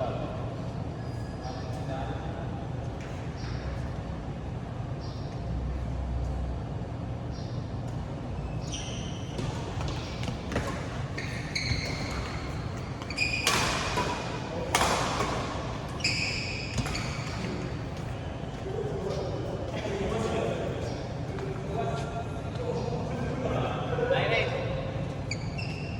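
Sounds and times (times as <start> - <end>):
shoes squeaking on floor: 8.2 - 22.0, 25.0 - 25.9
racket hitting shuttlecock: 9.4 - 16.0, 16.7 - 17.8.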